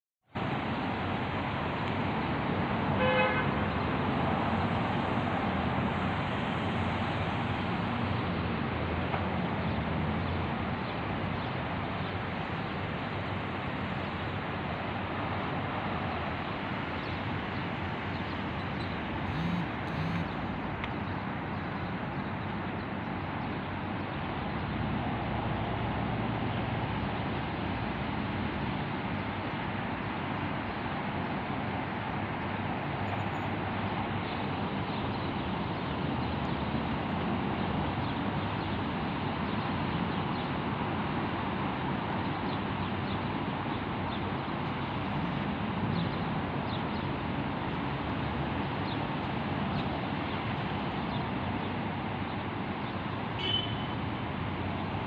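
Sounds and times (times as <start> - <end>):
road traffic noise: 0.2 - 55.0
car horn toot: 3.0 - 3.5, 19.3 - 20.3, 53.4 - 54.0.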